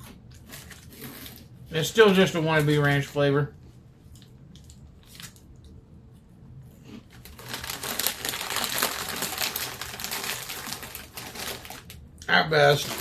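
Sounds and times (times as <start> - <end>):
snack bag crinkling: 7.0 - 12.0, 12.6 - 13.0.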